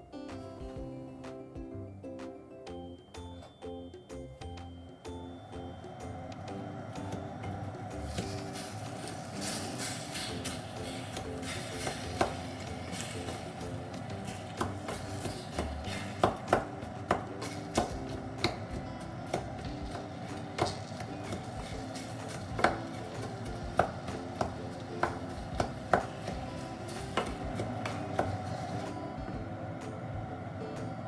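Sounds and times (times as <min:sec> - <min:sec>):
soft background music: 0:00.0 - 0:31.0
knife chopping on cutting board: 0:11.1 - 0:13.5, 0:14.3 - 0:18.7, 0:19.3 - 0:28.5.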